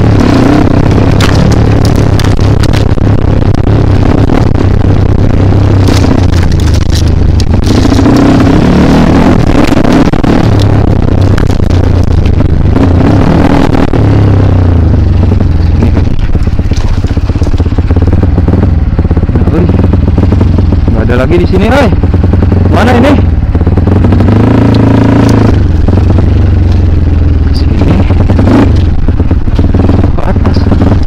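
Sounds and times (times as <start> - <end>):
dirt bike engine revving: 0.0 - 31.0
knocks and rattles: 0.9 - 3.0.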